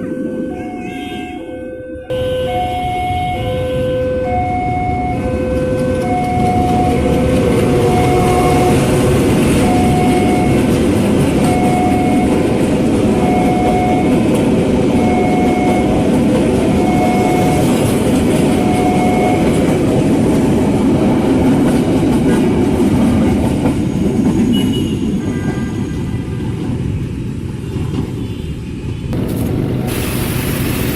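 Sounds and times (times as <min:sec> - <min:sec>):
electronic warning tone: 0:00.0 - 0:12.5, 0:13.2 - 0:14.4, 0:15.0 - 0:16.1, 0:16.7 - 0:17.8, 0:18.5 - 0:19.6
train rumbling past: 0:00.0 - 0:30.9.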